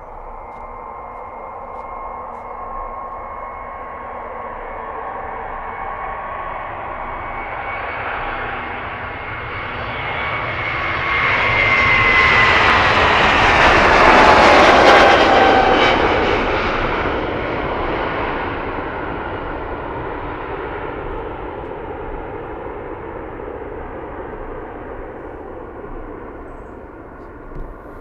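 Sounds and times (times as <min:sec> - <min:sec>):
jet airliner passing: 0:00.0 - 0:28.0.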